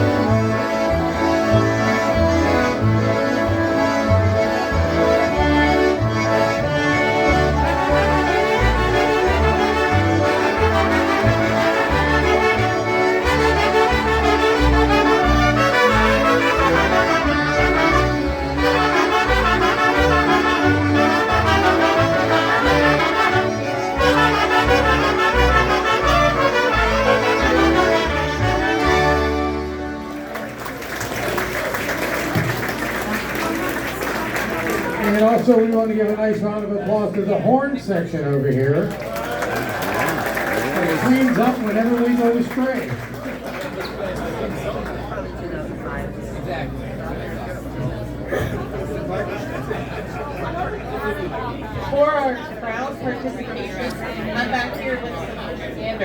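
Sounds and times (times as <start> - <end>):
polka band playing: 0.0 - 37.0, 39.2 - 43.2
crowd noise: 0.0 - 56.0.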